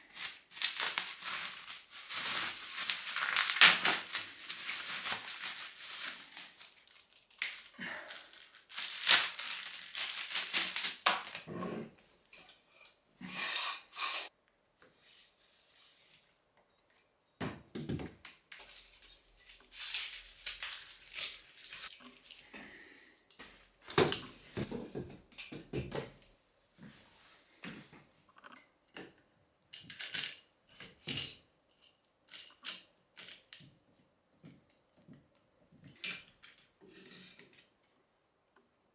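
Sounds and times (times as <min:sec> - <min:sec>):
packaging crinkling and tearing: 0:00.0 - 0:11.5, 0:19.6 - 0:22.4
metal parts clicking and clinking: 0:29.7 - 0:33.6.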